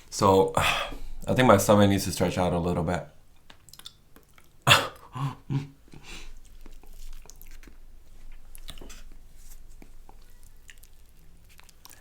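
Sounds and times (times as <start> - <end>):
chewing food: 3.4 - 5.1, 6.2 - 12.0
wet mouth clicks: 3.5 - 5.2.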